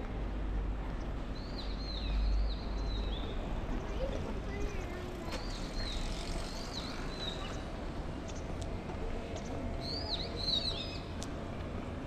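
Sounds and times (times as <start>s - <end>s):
small birds chirping: 1.0s - 8.5s, 9.3s - 11.2s.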